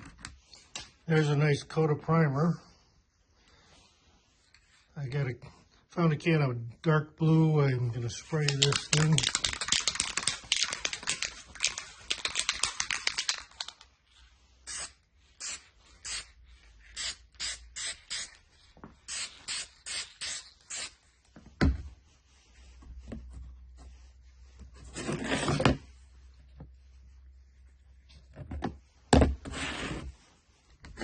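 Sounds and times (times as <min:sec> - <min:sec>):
spray can rattling: 0:08.3 - 0:13.9
spray can hissing bursts: 0:14.7 - 0:16.3, 0:17.0 - 0:18.4, 0:19.0 - 0:21.0.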